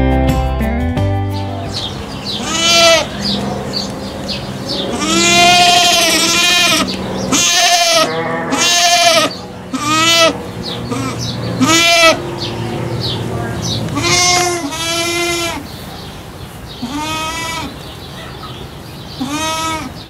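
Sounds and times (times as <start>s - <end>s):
goat bleating: 2.3s - 12.3s, 13.9s - 15.7s, 16.8s - 17.8s, 19.2s - 20.0s.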